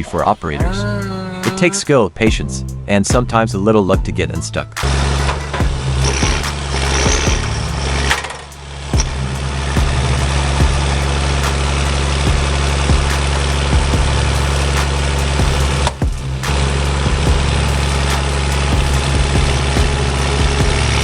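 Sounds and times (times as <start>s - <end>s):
diesel engine under load: 4.8s - 21.0s.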